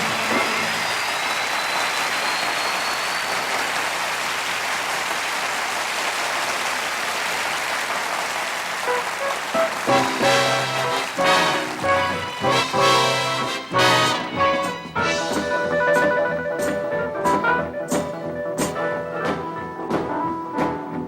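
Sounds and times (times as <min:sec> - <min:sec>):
audience applauding: 0:00.0 - 0:14.4
band instrument notes: 0:08.9 - 0:20.9.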